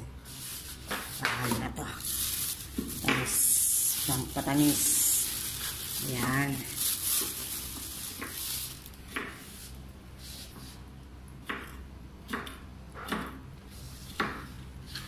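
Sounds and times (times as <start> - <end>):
knife chopping on wooden board: 11.4 - 13.4, 14.2 - 14.5.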